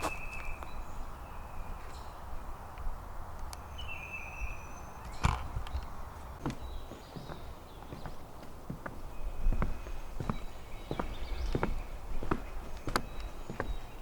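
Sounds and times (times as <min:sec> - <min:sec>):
footsteps walking on a trail: 0:00.0 - 0:02.2, 0:05.0 - 0:14.0
knocks and scuffs: 0:05.0 - 0:13.8.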